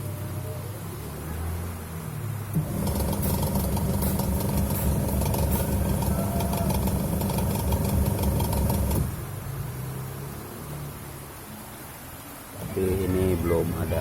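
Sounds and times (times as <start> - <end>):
electric motor humming: 2.6 - 9.2.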